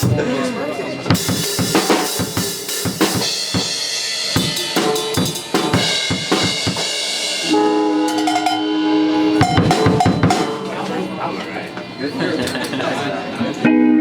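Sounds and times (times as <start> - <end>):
cymbals ringing: 0.0 - 13.7
snare drum hits: 4.4 - 6.9, 9.4 - 10.8
kick drum: 9.4 - 10.5.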